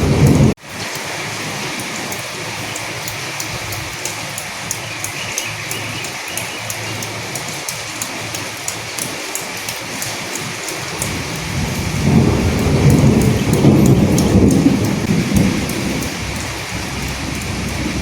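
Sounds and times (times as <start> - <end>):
thunder rumble: 0.0 - 0.6, 10.9 - 18.0
rain falling: 0.0 - 18.0.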